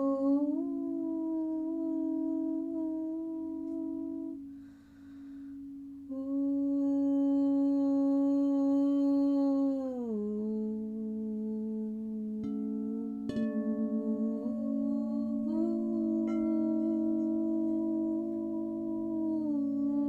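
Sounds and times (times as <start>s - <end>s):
person humming long notes: 0.0s - 5.1s, 6.0s - 20.0s
soft breath: 4.5s - 5.8s.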